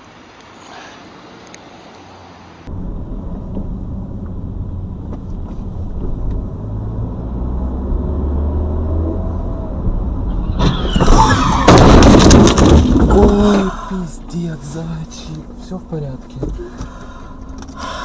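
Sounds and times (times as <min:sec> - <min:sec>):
car road and engine rumble: 0:00.0 - 0:18.0
car collision crash: 0:10.3 - 0:13.9.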